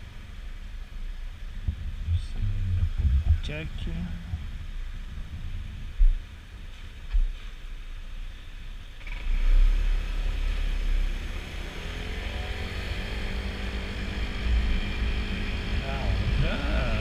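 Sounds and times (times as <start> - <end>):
wind thumps on microphone: 1.6 - 7.6
scooter engine speeding up: 9.0 - 17.0.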